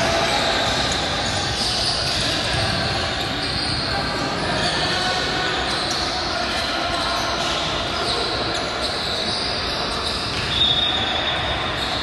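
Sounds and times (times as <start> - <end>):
basketball court and hall noise: 0.0 - 12.0
high squeal: 7.4 - 12.0.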